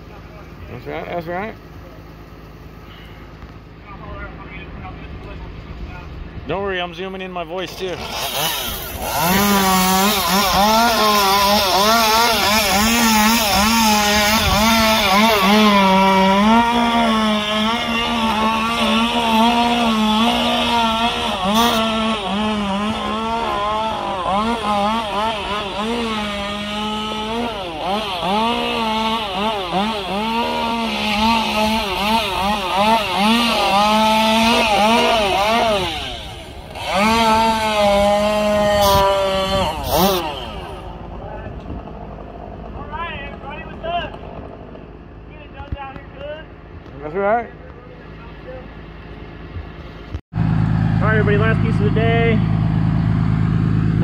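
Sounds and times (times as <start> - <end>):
chainsaw cutting wood: 7.6 - 45.1.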